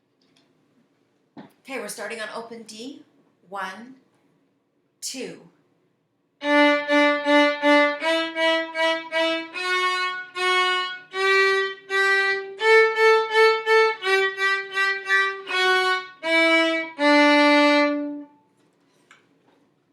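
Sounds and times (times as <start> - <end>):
violin playing bowed melody: 6.4 - 18.4.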